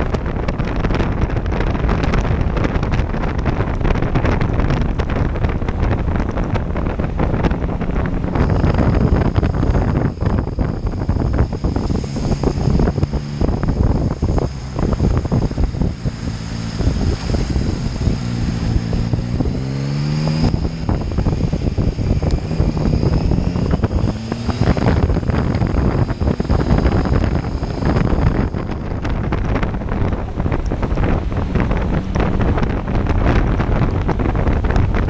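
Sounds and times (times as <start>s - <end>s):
motorcycle engine accelerating: 0.0s - 35.0s
wind buffeting microphone: 0.0s - 35.0s.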